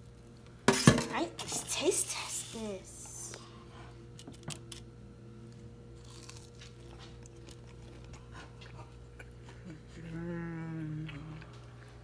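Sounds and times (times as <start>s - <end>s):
crunchy chewing: 5.5s - 10.0s.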